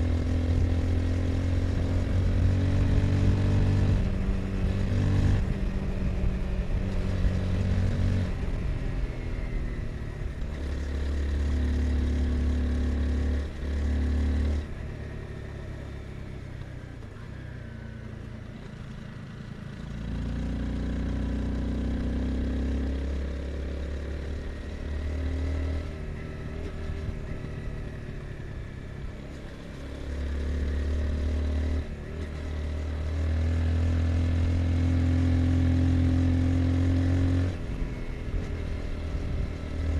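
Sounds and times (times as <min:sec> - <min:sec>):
motorcycle engine revving: 0:00.0 - 0:16.3, 0:18.8 - 0:39.9.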